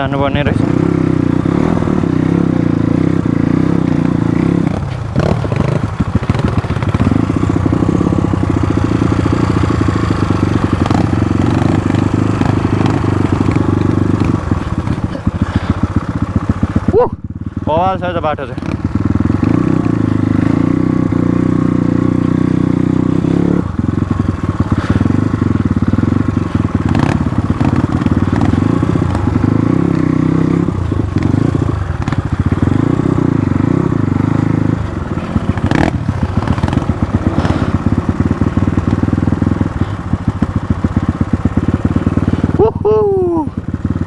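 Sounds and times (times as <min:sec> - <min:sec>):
motorcycle engine revving: 0:00.0 - 0:44.0
bike knocking and clattering: 0:01.6 - 0:16.9, 0:23.9 - 0:33.0, 0:34.9 - 0:42.5.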